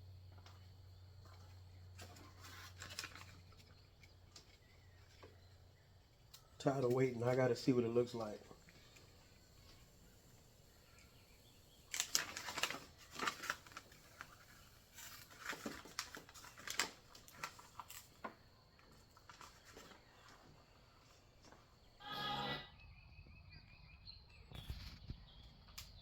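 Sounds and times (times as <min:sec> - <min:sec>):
paper crinkling and tearing: 0:02.0 - 0:03.6, 0:11.9 - 0:18.4.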